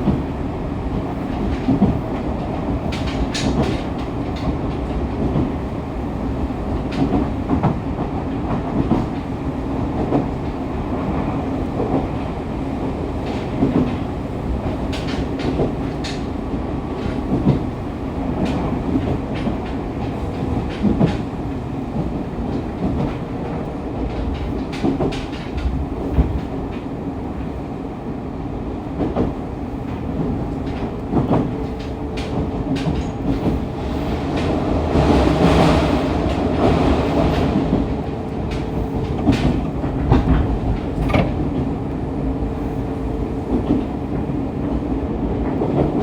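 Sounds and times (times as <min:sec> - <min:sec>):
electric train rumbling: 0:00.0 - 0:46.0
wheels clicking over rails: 0:29.0 - 0:42.7.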